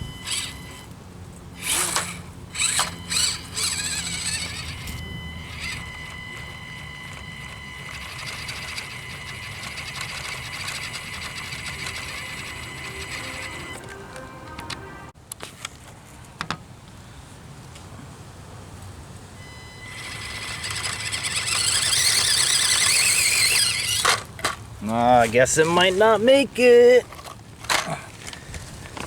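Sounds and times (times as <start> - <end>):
small electric motor whining: 0.0 - 1.0, 1.6 - 14.0, 19.4 - 24.6.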